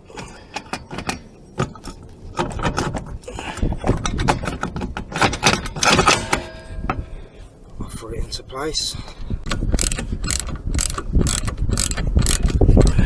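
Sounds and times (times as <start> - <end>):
metal parts clinking and rattling: 3.8 - 6.9, 9.5 - 13.0.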